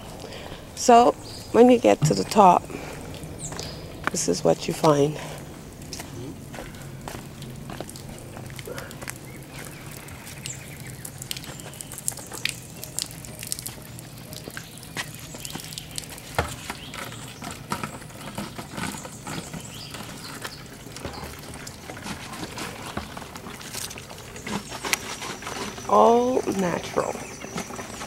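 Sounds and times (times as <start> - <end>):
spring water trickling: 0.0 - 28.0.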